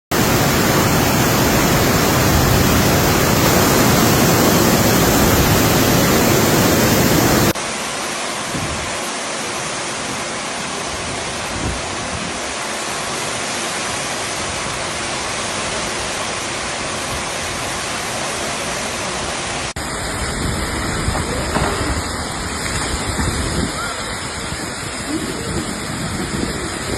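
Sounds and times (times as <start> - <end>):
storm water rushing: 0.1 - 26.9.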